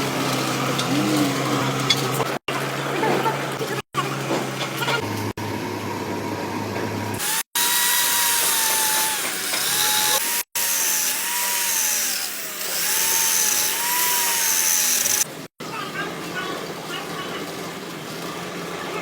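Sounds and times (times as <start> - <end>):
power tool whining: 7.2 - 15.4.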